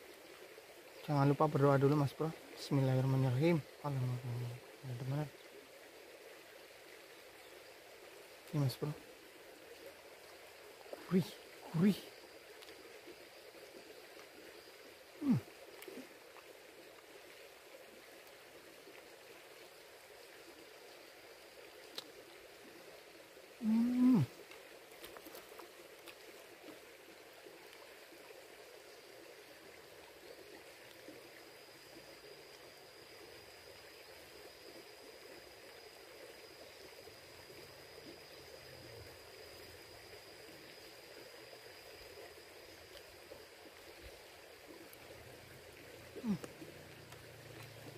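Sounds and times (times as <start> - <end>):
faint river rushing: 0.0 - 47.9
person humming mmm: 15.2 - 16.1, 23.6 - 24.4, 46.2 - 46.7.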